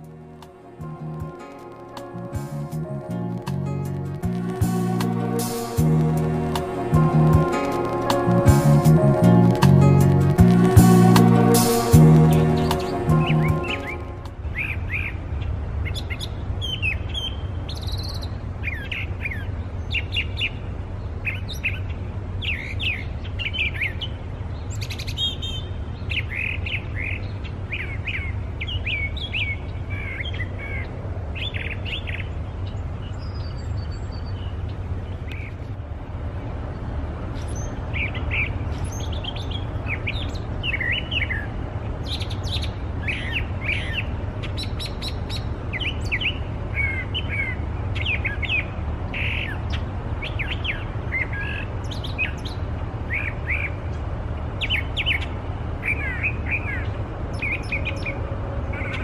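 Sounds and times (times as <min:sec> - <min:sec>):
low rumble: 0:02.2 - 0:14.5
bird singing rapid phrases: 0:15.8 - 0:35.7, 0:37.4 - 0:59.0.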